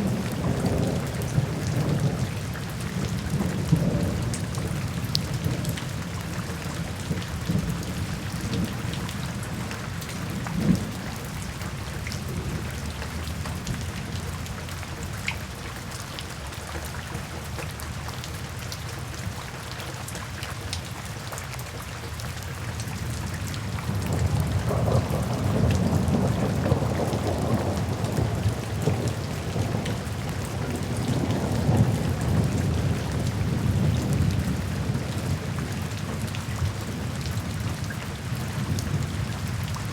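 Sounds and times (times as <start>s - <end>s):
steady rain falling: 0.0s - 39.9s
thunder rumbling: 23.8s - 37.8s.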